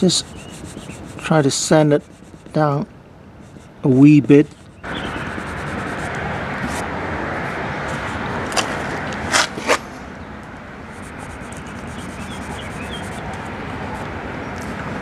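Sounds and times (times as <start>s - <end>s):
sandpaper scratching on filler: 0.0s - 2.7s, 4.4s - 6.8s, 11.0s - 13.4s.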